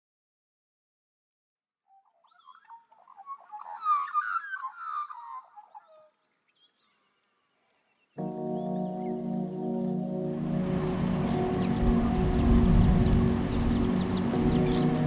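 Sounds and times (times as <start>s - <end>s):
birds chirping and warbling: 2.3s - 15.0s
music with held notes: 8.2s - 15.0s
high downward-sliding bird call: 8.8s - 15.0s.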